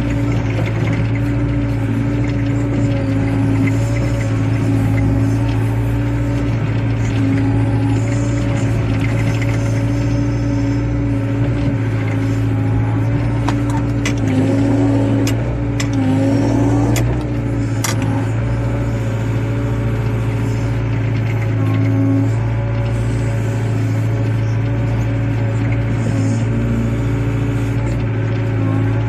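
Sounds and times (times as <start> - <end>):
excavator diesel engine running: 0.0 - 29.0
sharp clicks and knocks: 10.9 - 18.8.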